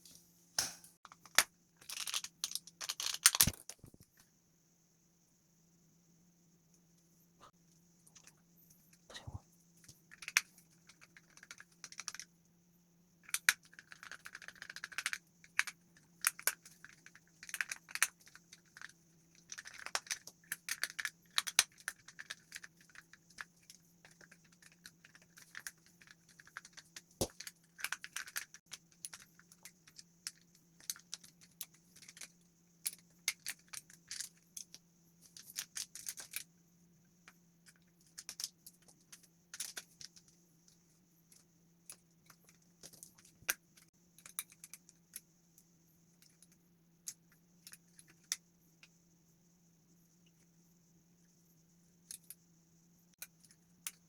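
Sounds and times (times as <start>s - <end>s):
faint steady hum: 0.0s - 54.0s
small hard parts clicking: 13.2s - 36.5s.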